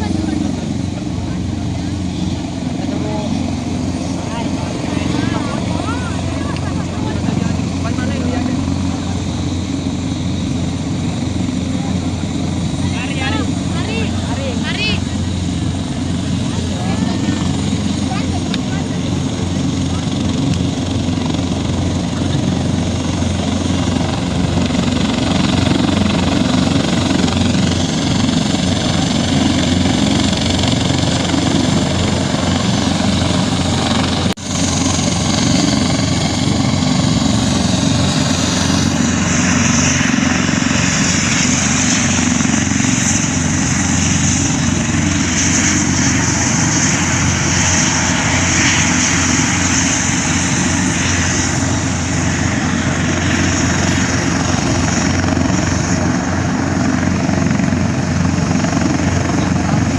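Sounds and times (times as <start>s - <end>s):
aircraft engine running: 0.0s - 59.9s
high turbine whine: 0.0s - 59.9s.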